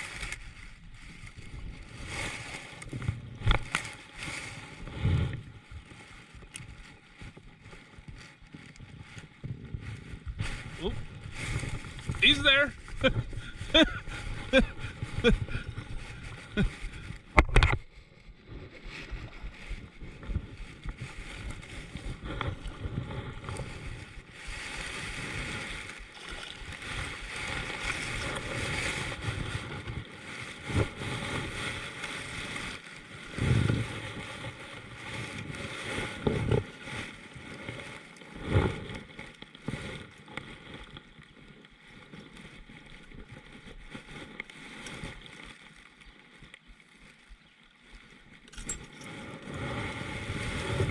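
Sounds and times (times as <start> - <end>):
water sloshing and splashing: 0.0 - 49.6.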